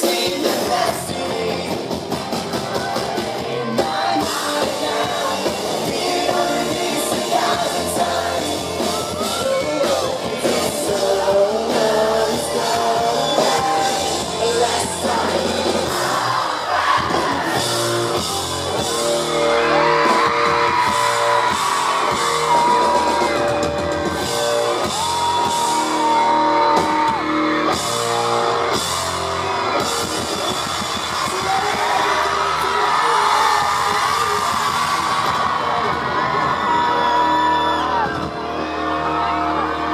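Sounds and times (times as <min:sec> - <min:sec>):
person singing: 0:00.0 - 0:02.2, 0:03.2 - 0:16.4
crowd yelling: 0:00.0 - 0:39.9
live rock band playing: 0:00.0 - 0:39.9.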